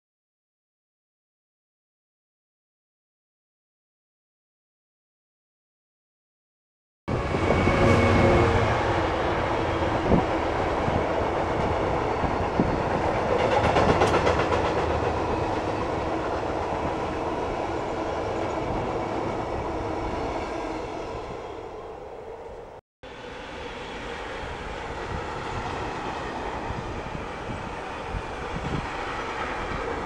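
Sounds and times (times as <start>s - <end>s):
diesel locomotive engine: 7.1s - 30.0s
wheels clicking over rail joints: 13.2s - 15.4s.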